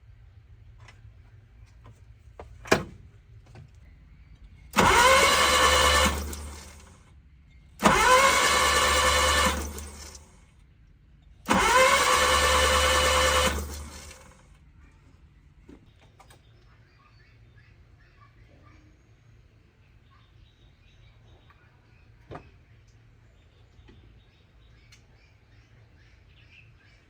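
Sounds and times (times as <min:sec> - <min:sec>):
starter motor cranking engine: 0:04.6 - 0:07.1, 0:07.8 - 0:10.4, 0:11.4 - 0:14.6.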